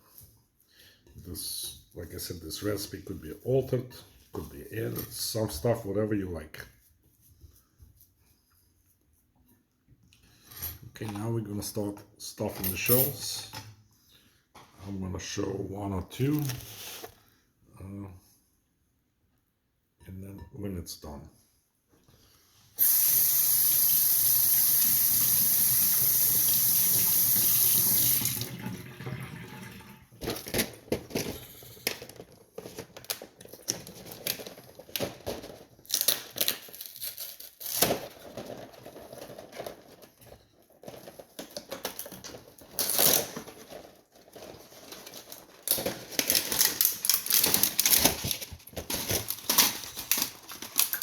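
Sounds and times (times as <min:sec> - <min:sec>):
water running from a tap: 0:22.8 - 0:30.1
clicks and rustles of handling: 0:30.2 - 0:51.0.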